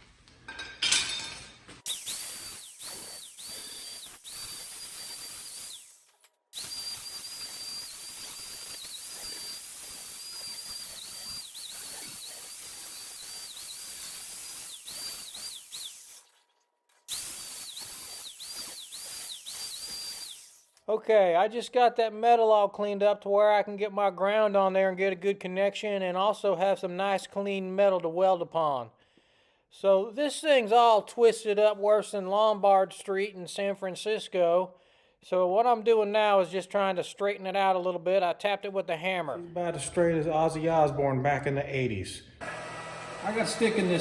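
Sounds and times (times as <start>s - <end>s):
electric grinder on metal: 1.9s - 16.3s, 17.1s - 20.7s, 42.4s - 44.0s.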